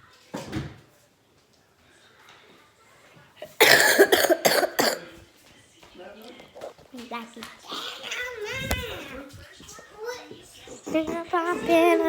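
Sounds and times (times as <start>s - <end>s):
person coughing: 3.5s - 5.1s.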